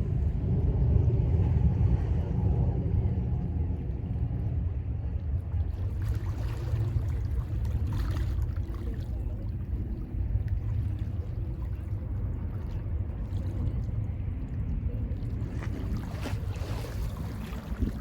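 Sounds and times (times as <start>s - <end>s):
waves washing ashore: 10.6s - 18.0s.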